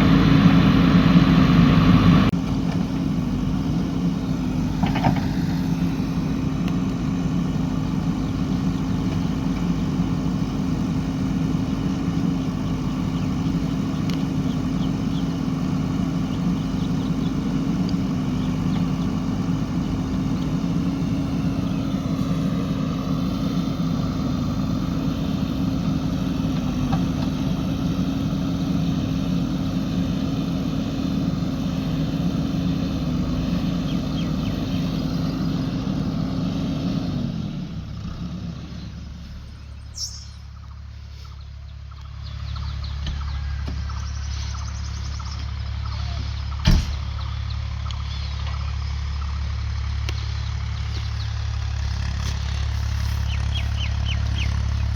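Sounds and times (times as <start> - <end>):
diesel engine droning: 0.0 - 54.9.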